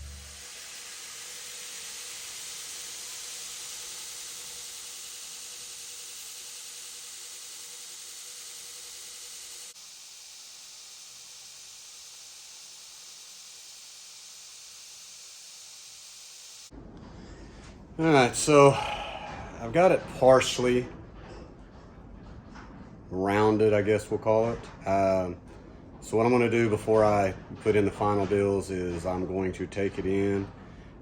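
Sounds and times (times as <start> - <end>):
belt grinder hissing: 0.0 - 16.7.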